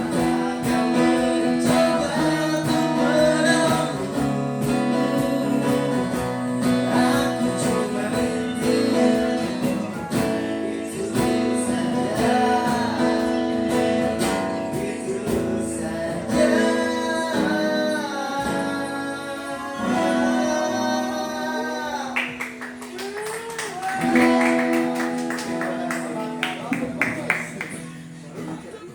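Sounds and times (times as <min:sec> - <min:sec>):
strummed acoustic guitar: 0:00.0 - 0:23.0, 0:24.0 - 0:28.9
person singing: 0:00.0 - 0:26.3.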